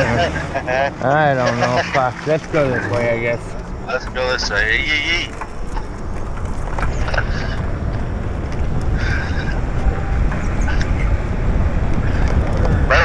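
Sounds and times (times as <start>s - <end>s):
wind rushing over microphone: 2.8s - 13.0s
bicycle tyre noise: 4.5s - 13.0s.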